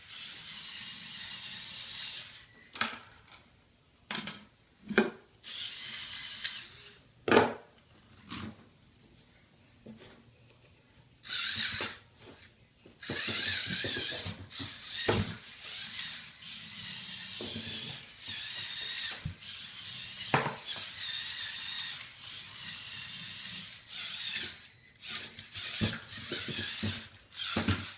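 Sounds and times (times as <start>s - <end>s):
toy motor and gears whirring: 0.0s - 2.6s, 5.4s - 7.0s, 11.2s - 12.1s, 13.0s - 27.9s.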